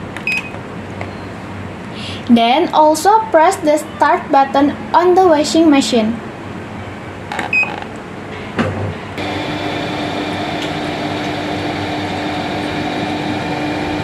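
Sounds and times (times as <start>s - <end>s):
washing machine beep: 0.2s - 0.5s, 7.5s - 7.7s
washing machine humming: 9.2s - 14.0s.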